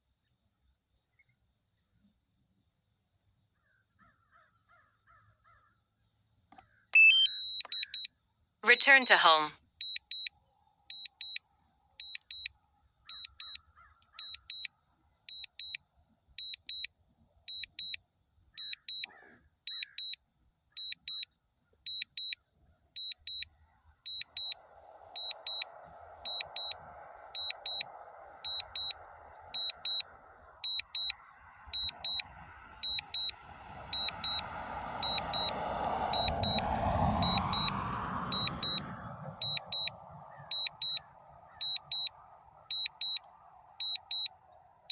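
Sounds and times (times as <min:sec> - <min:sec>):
short high warning beeps: 0:07.0 - 0:07.9, 0:08.6 - 0:10.2, 0:26.3 - 0:26.8, 0:27.4 - 0:27.9, 0:28.5 - 0:29.0, 0:29.6 - 0:30.0, 0:31.8 - 0:33.4, 0:34.0 - 0:34.4, 0:35.0 - 0:35.5, 0:36.2 - 0:36.6, 0:37.2 - 0:37.7, 0:38.3 - 0:38.8, 0:39.4 - 0:41.0, 0:41.6 - 0:44.4.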